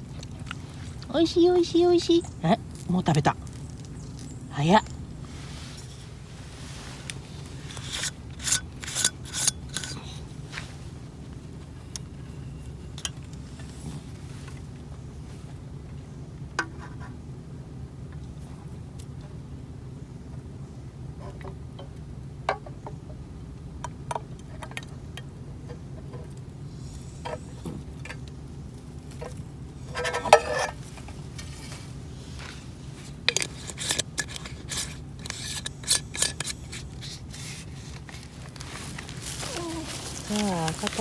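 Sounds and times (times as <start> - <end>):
steady low hum: 0.0 - 41.0
cookware clinks and scrapes: 29.9 - 30.8.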